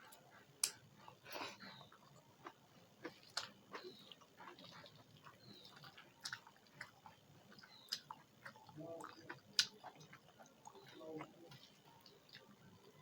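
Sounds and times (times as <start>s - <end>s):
person chewing food: 0.0s - 13.0s
lip smacks: 0.1s - 0.8s, 1.4s - 10.9s.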